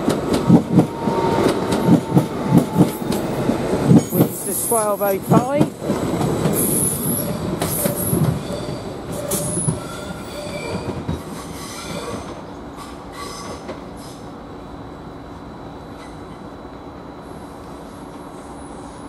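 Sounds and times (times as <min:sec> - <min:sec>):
train rumble: 0:00.0 - 0:19.0
train wheels squealing on rails: 0:00.4 - 0:05.4, 0:06.5 - 0:14.4, 0:15.9 - 0:16.5, 0:17.3 - 0:19.0.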